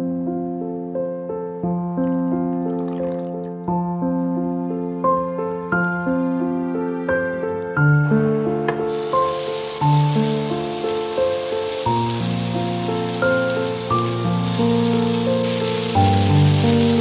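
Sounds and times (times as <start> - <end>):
background music: 0.1 - 17.0
chicken sizzling in frying pan: 8.0 - 17.0.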